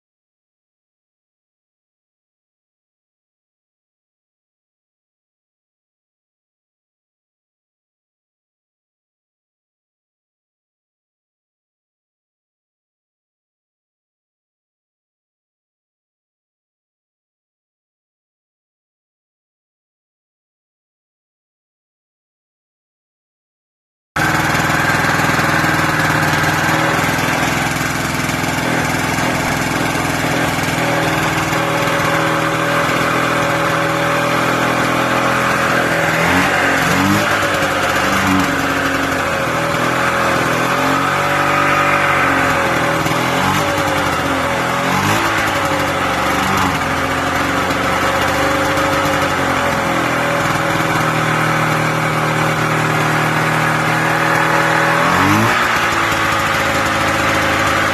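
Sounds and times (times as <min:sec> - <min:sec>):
snowmobile engine revving: 0:24.2 - 0:57.9.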